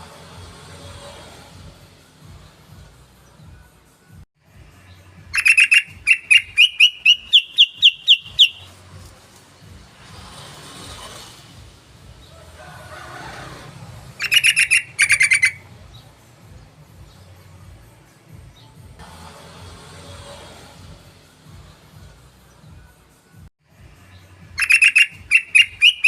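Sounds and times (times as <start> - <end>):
bulbul chirping song: 4.8 - 8.8, 14.2 - 17.5, 24.0 - 26.0.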